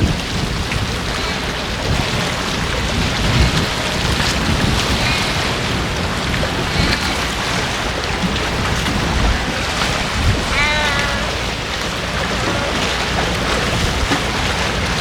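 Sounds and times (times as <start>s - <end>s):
wind buffeting microphone: 0.0s - 15.0s
short high call: 10.4s - 11.6s.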